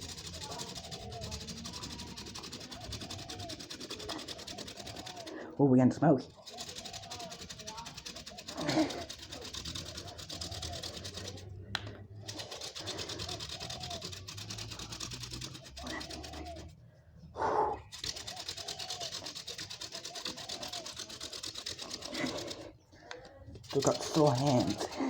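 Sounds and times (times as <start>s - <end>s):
wooden spindle rubbing on fireboard: 23.6s - 25.0s.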